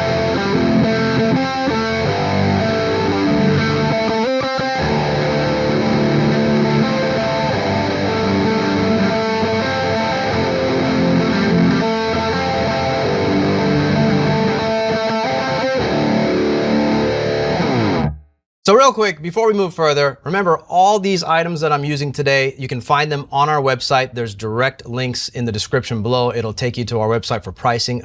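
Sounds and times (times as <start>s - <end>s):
electric guitar chords and riff: 0.0s - 18.4s.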